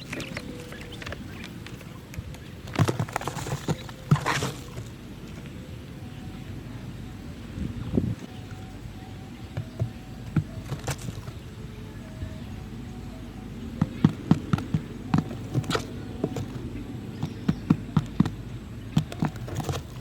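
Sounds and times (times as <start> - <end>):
low background noise: 0.0 - 20.0
sharp knocks and taps: 13.8 - 20.0.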